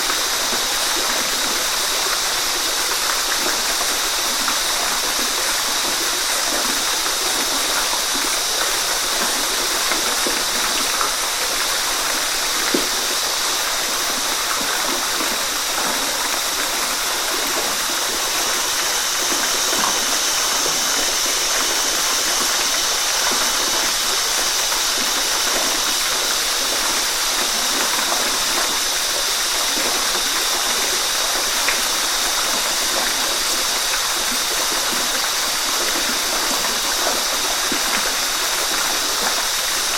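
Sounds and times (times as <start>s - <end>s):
water splashes: 0.0s - 39.9s
waterfall rushing: 0.0s - 39.9s.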